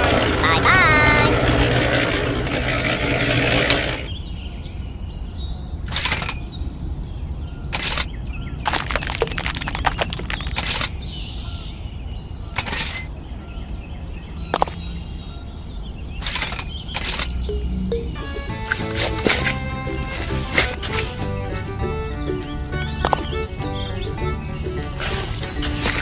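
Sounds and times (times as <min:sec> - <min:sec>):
scraping or crackling bursts: 0:05.9 - 0:06.4, 0:07.7 - 0:08.1, 0:08.7 - 0:10.9, 0:12.6 - 0:13.1, 0:16.2 - 0:17.3.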